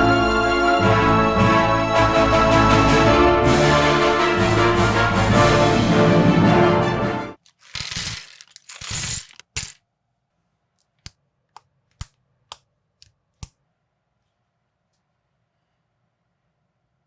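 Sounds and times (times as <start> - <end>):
plastic bricks rattling: 7.4 - 9.8
plastic pieces clicking together: 7.4 - 9.8.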